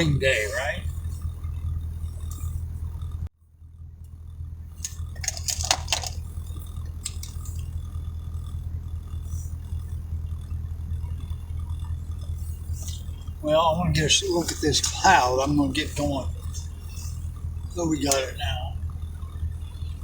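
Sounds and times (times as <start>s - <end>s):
car cabin hum: 0.0s - 20.0s
short rattling clicks: 4.8s - 6.3s, 6.9s - 7.7s.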